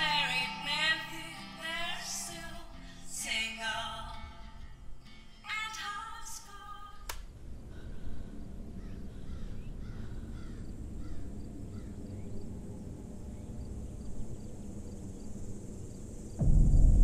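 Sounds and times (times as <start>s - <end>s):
faint insect hiss: 0.0s - 17.0s
steady low rumble: 7.3s - 17.0s.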